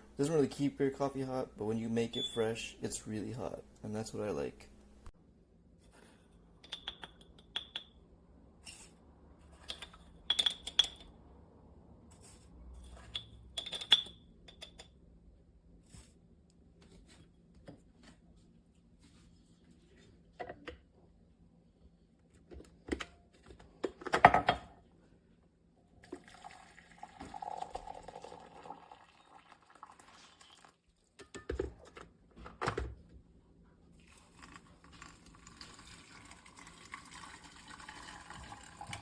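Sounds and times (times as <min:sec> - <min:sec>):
liquid pouring: 0:26.0 - 0:30.9, 0:34.0 - 0:39.0.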